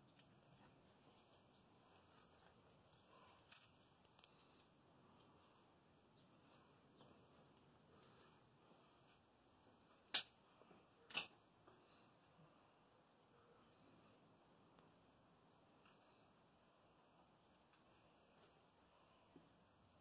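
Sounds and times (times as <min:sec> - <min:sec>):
small bird chirping: 0:00.0 - 0:03.6, 0:04.3 - 0:09.4.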